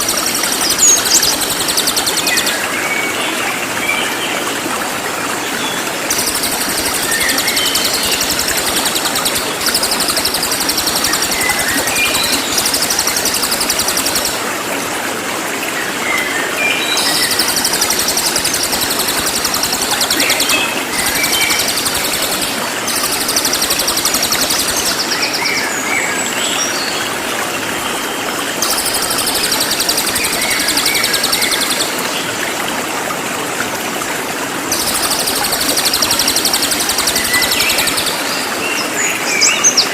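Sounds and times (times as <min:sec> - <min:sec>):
songbird trilling: 0:00.0 - 0:02.6.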